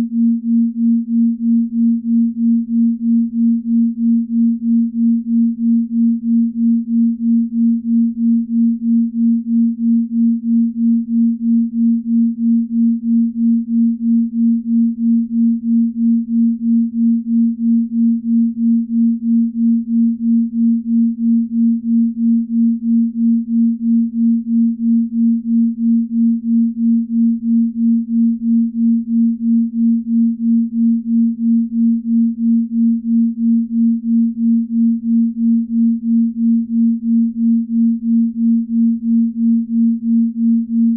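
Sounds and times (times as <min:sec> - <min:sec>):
pulsing low binaural tone: 0:08.9 - 0:40.9.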